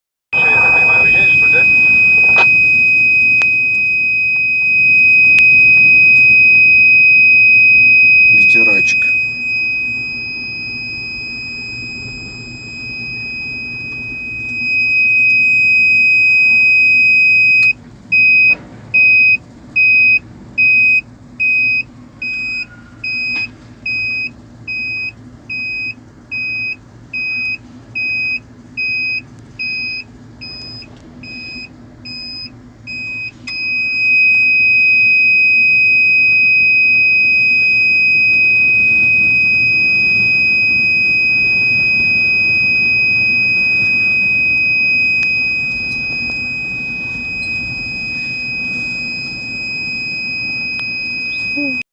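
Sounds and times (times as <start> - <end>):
low background rumble: 0.4 - 17.3
electronic alarm buzzer: 0.4 - 30.0, 31.4 - 51.8.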